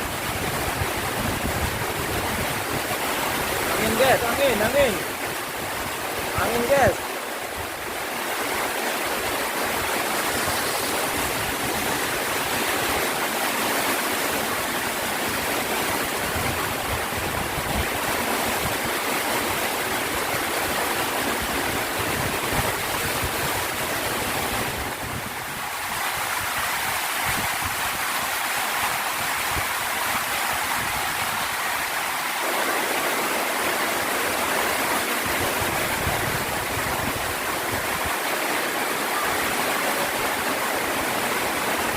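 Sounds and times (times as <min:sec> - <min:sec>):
gusty wind: 0:00.0 - 0:32.2, 0:34.0 - 0:41.9
heavy rain: 0:00.0 - 0:41.9.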